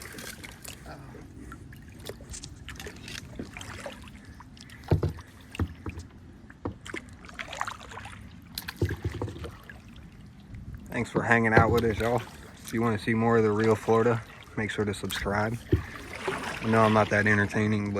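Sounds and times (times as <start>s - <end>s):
paddle strokes splashing in water: 0.0s - 17.9s
paddle knocking against kayak: 4.7s - 7.1s, 8.6s - 9.7s, 11.4s - 12.4s, 15.2s - 17.0s.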